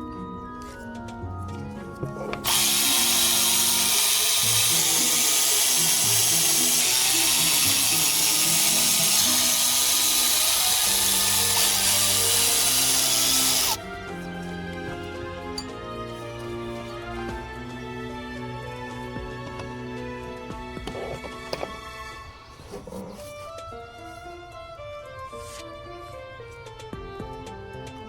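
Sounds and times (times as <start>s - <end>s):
handheld power tool running: 2.4s - 13.8s.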